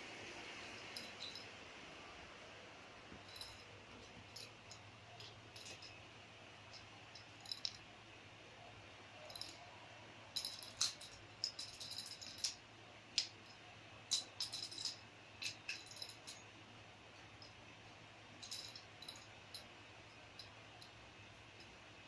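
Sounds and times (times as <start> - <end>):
bell ball rattling: 0.7 - 1.5, 3.2 - 6.1, 6.7 - 7.8, 9.2 - 9.7, 10.4 - 12.6, 13.2 - 16.5, 18.4 - 21.0.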